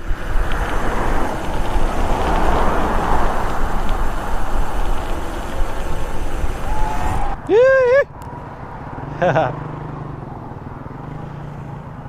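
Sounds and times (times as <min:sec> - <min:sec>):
wind buffeting microphone: 0:00.0 - 0:07.5.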